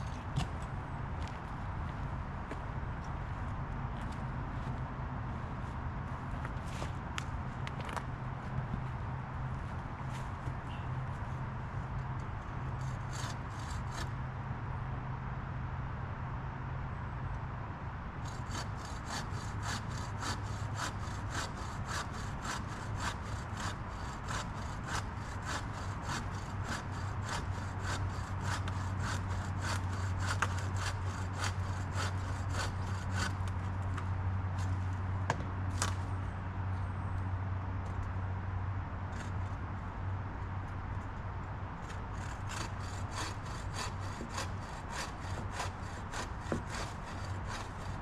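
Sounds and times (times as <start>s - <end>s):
hand saw cutting wood: 12.8s - 14.1s, 18.2s - 34.8s, 41.8s - 48.0s.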